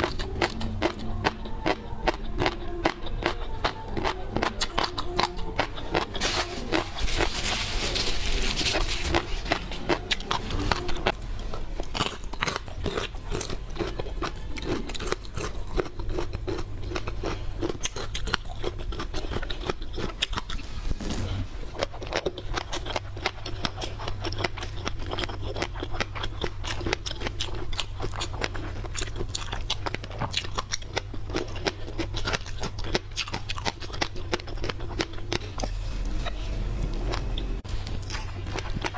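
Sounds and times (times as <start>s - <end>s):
crunching and chewing seafood: 0.0s - 38.9s
rustling: 5.6s - 12.6s, 20.1s - 23.8s.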